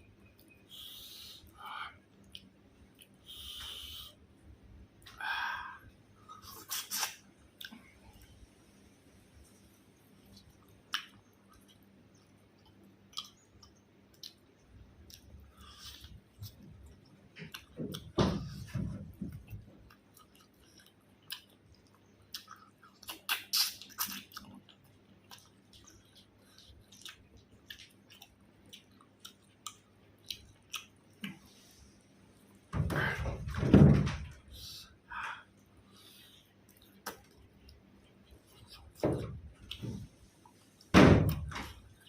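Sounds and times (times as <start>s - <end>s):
wet mouth clicks and smacks: 10.3s - 16.6s, 19.9s - 24.6s, 36.6s - 37.8s
close-up chewing of food: 19.3s - 31.4s.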